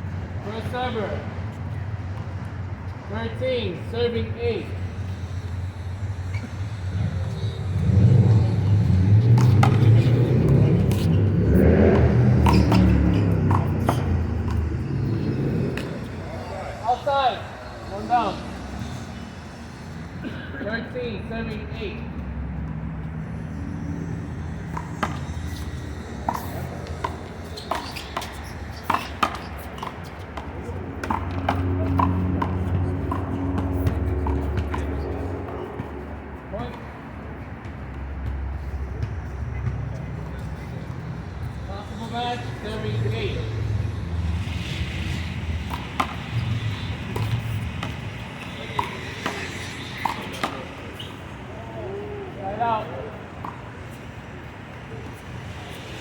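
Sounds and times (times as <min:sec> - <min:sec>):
steady low rumble: 0:03.8 - 0:21.6.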